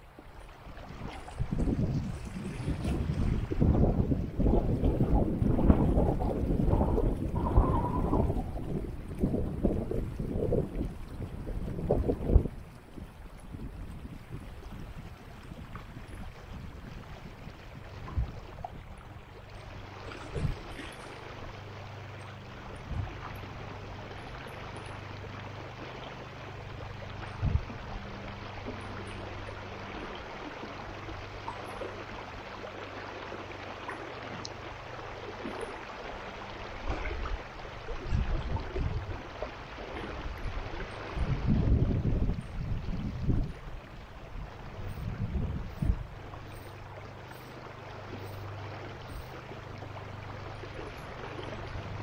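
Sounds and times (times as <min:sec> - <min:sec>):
steady low hum: 0:00.0 - 0:52.0
stream water rushing: 0:00.0 - 0:52.0
low rumbles: 0:00.9 - 0:32.5.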